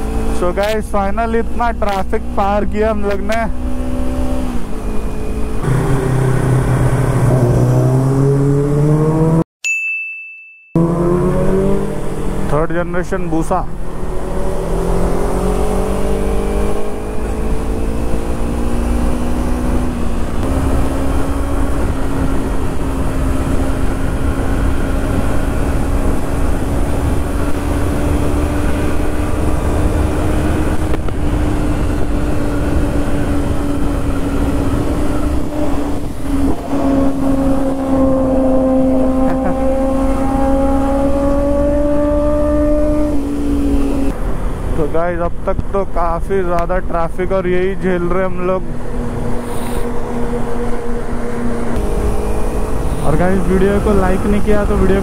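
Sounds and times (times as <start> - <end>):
motorcycle engine accelerating: 0.0 - 9.4, 10.8 - 55.0
wind rumble on microphone: 19.8 - 40.7.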